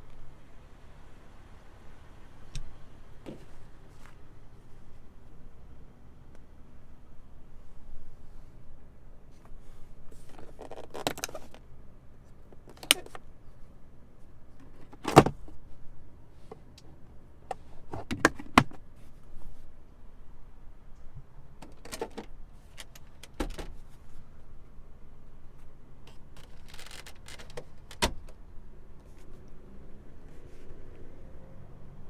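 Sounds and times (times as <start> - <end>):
car door and control clicks: 26.1 - 28.4.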